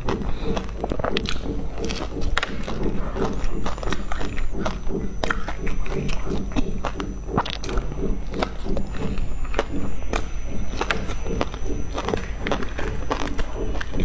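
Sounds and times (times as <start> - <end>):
chewing and lip smacking: 0.0 - 14.0.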